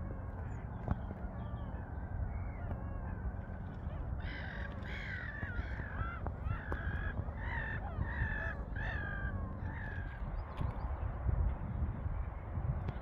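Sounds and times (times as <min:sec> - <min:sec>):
harsh crow-like bird calls: 0:00.4 - 0:10.6.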